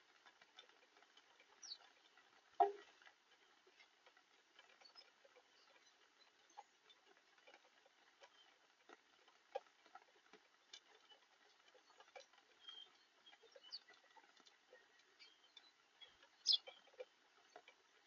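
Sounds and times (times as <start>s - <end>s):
raindrops ticking on surfaces: 0.0s - 18.0s
faint high chirps: 12.6s - 16.8s.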